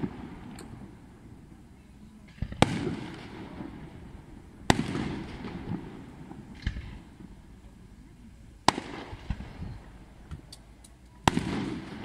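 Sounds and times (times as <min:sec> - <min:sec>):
firework bangs with echo: 0:00.0 - 0:01.0, 0:02.3 - 0:07.4, 0:08.6 - 0:10.2, 0:11.2 - 0:12.0.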